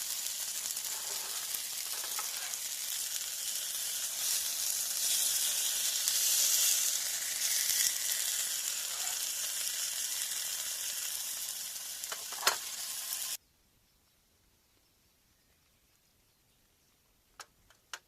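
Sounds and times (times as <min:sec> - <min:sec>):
meat sizzling in a pan: 0:00.0 - 0:13.4.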